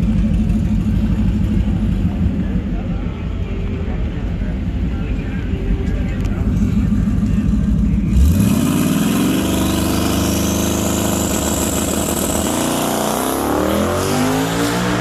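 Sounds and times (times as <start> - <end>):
engine accelerating at full throttle: 6.2 - 15.0.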